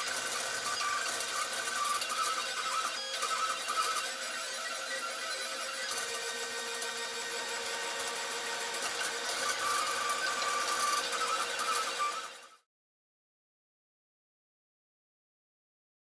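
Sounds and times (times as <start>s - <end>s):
three d printer motors whining: 0.0s - 12.6s.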